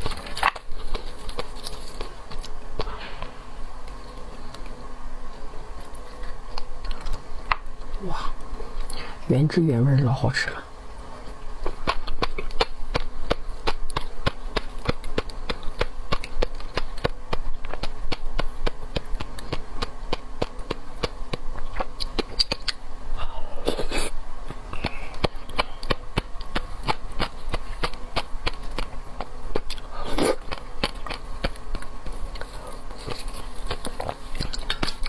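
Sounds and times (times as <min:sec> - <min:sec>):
wet chewing clicks and smacks: 0:11.6 - 0:22.8, 0:24.7 - 0:35.0.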